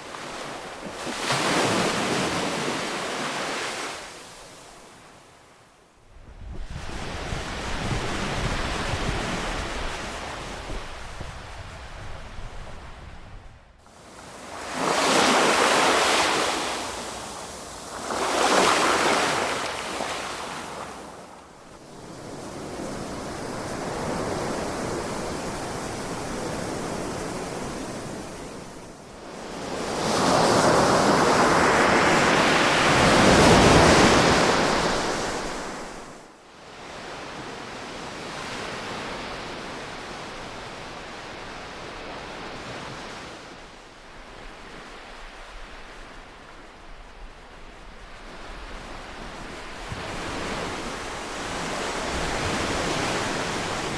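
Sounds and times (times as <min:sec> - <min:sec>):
ocean waves breaking: 0:00.0 - 0:04.5, 0:13.9 - 0:28.7, 0:48.1 - 0:53.9.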